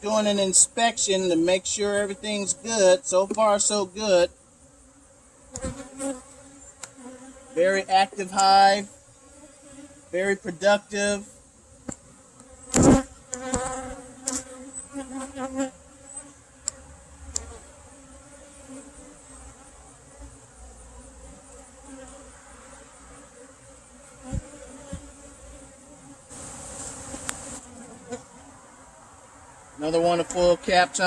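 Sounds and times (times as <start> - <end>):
honeybees buzzing: 0.0 - 31.0
thump: 12.7 - 13.1, 24.3 - 25.1.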